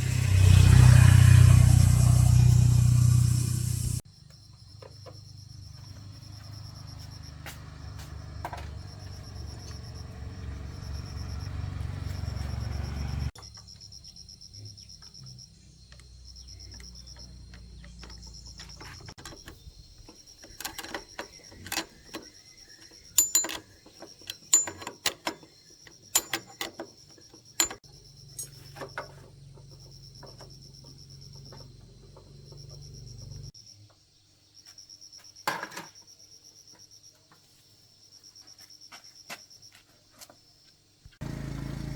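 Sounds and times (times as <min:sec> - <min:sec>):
insects chirping: 0:00.1 - 0:41.2
metallic clinks of tools: 0:20.5 - 0:29.1.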